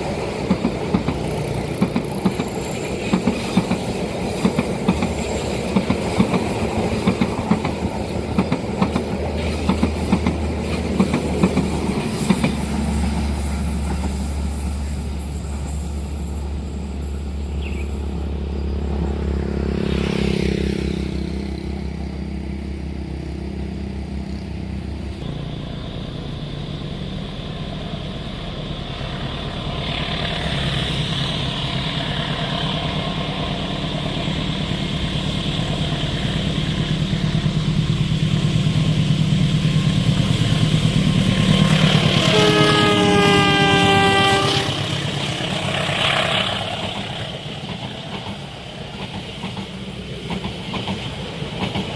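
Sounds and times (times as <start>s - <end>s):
train rumble: 0.0s - 51.9s
motorbike passing: 18.5s - 25.7s
locomotive horn: 41.9s - 45.1s.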